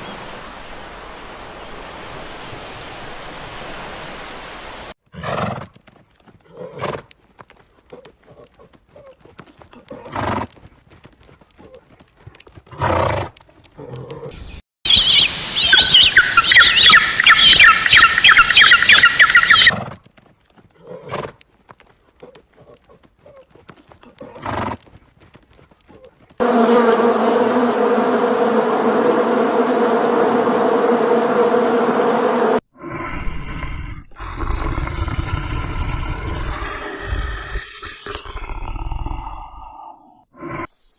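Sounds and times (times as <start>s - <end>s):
pulsing animal call: 13.9s - 19.8s
bees buzzing: 26.4s - 32.6s.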